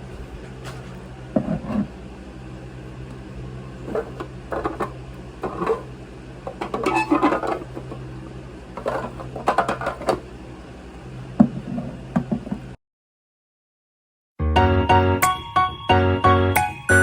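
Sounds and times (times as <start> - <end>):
steady low hum: 0.0 - 12.8
clatter of objects being handled: 0.4 - 1.9, 3.9 - 5.9, 6.5 - 8.0, 8.8 - 10.2.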